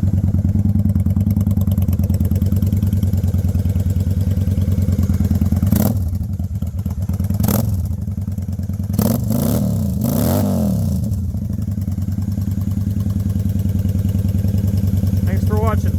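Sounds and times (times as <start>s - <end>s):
motorcycle engine idling: 0.0s - 15.9s
motorcycle engine revving: 0.0s - 15.9s.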